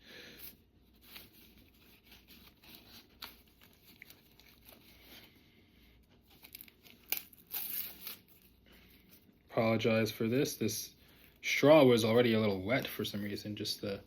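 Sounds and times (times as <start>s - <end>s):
paper packaging rustling and tearing: 0.9s - 5.3s, 6.1s - 8.6s.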